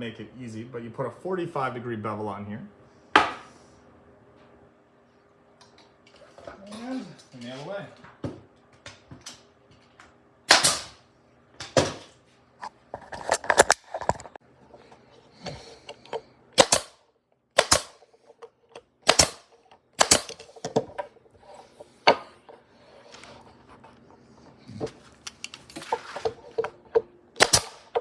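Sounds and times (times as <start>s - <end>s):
nails hammered into wood: 10.5s - 11.0s, 16.6s - 17.0s, 17.6s - 18.0s, 19.0s - 20.5s, 27.4s - 28.0s.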